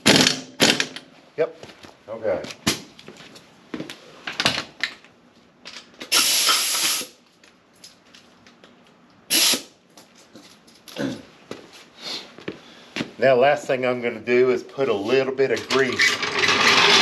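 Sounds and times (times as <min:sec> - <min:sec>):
hissing bursts: 0:06.1 - 0:07.2, 0:09.3 - 0:09.8.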